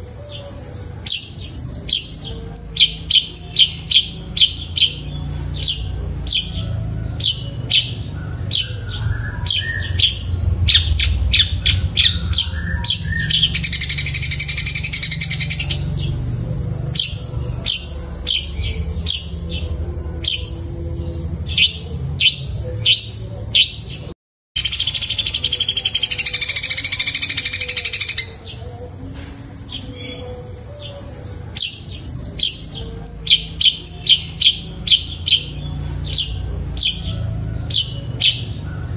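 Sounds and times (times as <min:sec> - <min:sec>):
bird high sharp chirps: 0:01.1 - 0:16.2.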